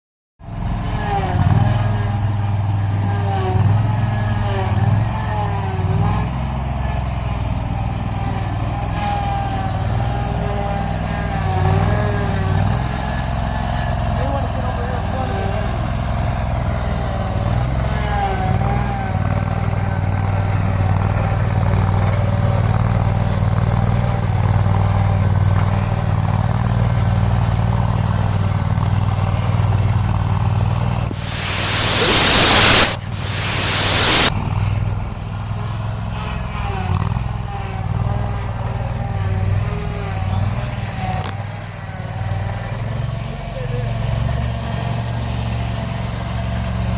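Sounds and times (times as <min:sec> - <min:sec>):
loud rushing noises: 0:31.1 - 0:34.3.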